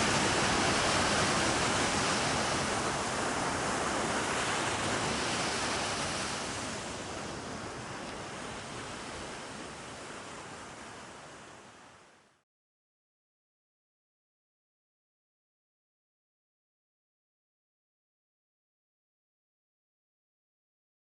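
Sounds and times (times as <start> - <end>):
steady rushing noise: 0.0 - 7.0.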